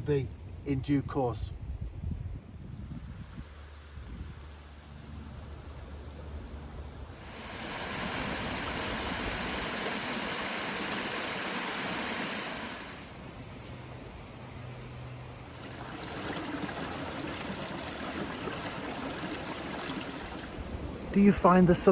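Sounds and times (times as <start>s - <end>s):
water running over stones: 7.2s - 13.2s, 15.5s - 20.7s.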